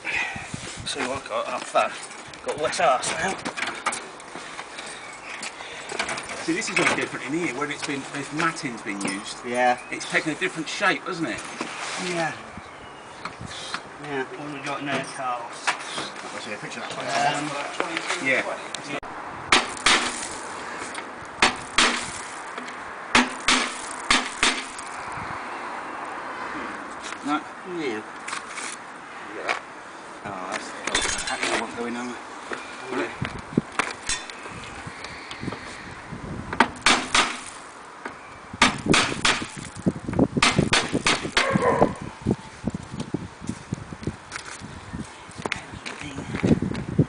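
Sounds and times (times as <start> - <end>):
sharp knocks: 19.5 - 20.2, 21.4 - 22.1, 23.1 - 24.8, 36.5 - 37.5, 38.6 - 39.6, 40.4 - 41.6.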